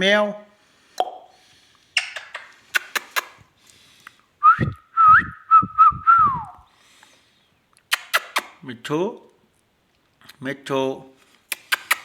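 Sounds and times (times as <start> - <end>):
parrot sharp clicks: 2.0 - 3.4, 11.5 - 12.0.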